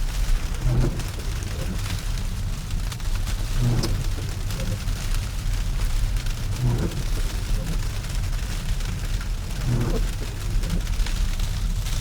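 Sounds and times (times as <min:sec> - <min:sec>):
road and tyre rumble in car: 0:00.0 - 0:12.0.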